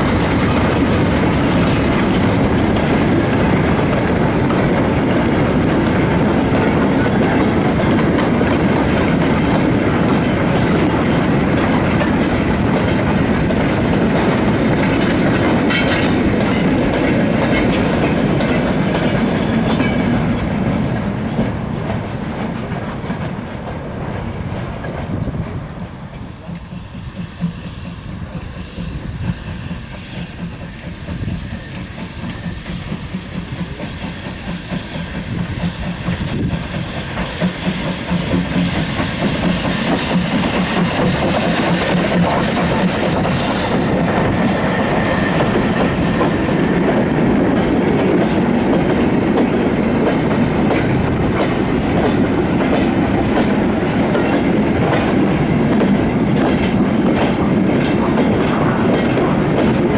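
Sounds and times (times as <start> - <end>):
freight wagons clattering over rail joints: 0.0 - 25.9
steam locomotive: 0.0 - 59.9
steam hiss: 25.8 - 55.3.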